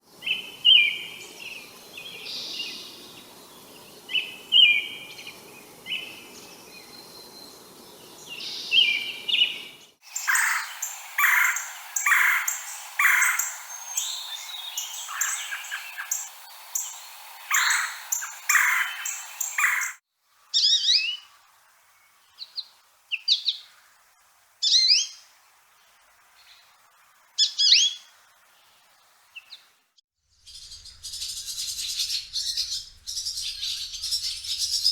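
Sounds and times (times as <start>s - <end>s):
bird call phrases: 8.6s - 20.0s
bird chattering: 10.1s - 20.0s
sharp falling bird notes: 10.2s - 20.0s.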